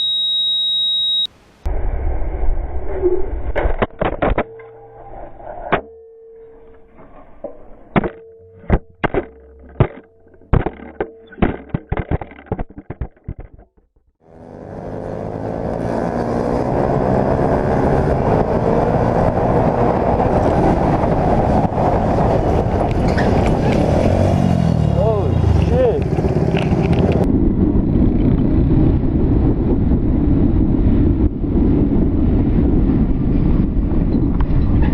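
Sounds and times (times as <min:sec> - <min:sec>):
low hum: 0:00.0 - 0:34.9
motorcycle riding on road: 0:03.2 - 0:34.9
sharp knocks and clicks: 0:07.4 - 0:14.2
wind noise: 0:15.3 - 0:34.9.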